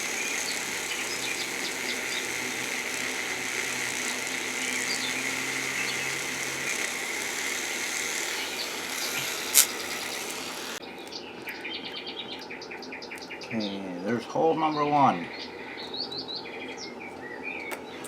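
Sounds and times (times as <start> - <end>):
power drill boring: 0.0 - 10.8.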